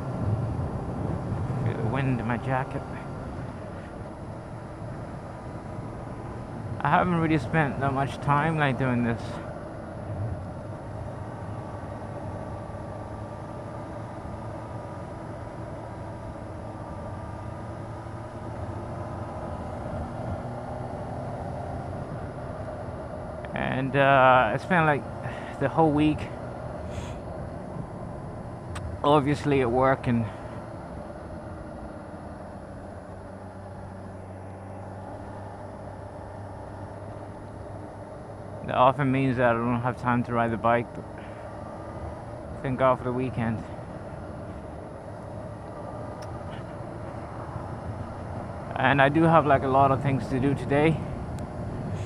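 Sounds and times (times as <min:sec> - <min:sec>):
wind rush: 0:00.0 - 0:04.4.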